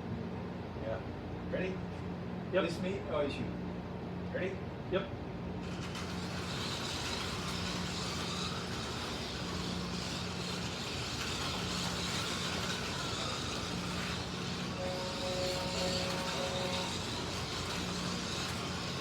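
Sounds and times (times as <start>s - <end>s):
slot car electric motors whining: 5.5s - 19.0s
gears and pickup braids rasping: 5.6s - 19.0s.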